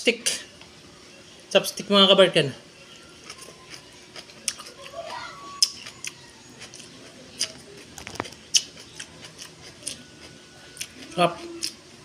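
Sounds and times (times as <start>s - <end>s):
person chewing with wet clicks: 3.2s - 11.8s.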